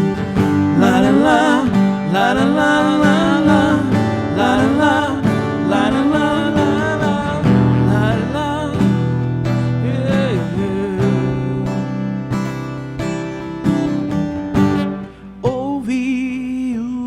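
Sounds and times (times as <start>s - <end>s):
acoustic guitar strumming chords: 0.0s - 16.6s
person singing wordless melody: 0.5s - 9.1s, 9.7s - 12.0s, 15.4s - 17.0s.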